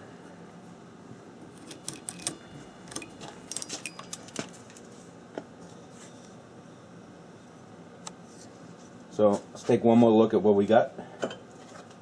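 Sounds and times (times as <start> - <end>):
faint steady hum: 0.0 - 12.0
small metal tools clinking: 1.6 - 4.4.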